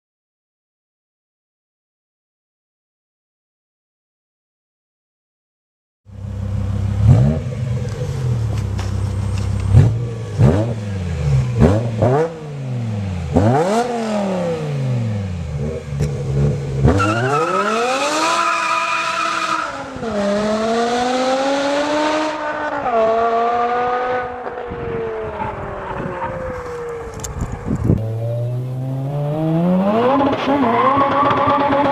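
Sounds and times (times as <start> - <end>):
car engine idling and revving: 6.1 - 31.9
car accelerating hard: 6.9 - 31.9.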